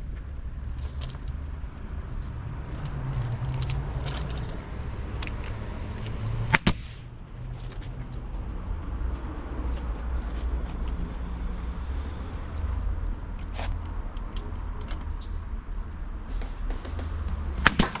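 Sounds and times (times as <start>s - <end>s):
loud sharp knocks: 16.3s - 18.0s.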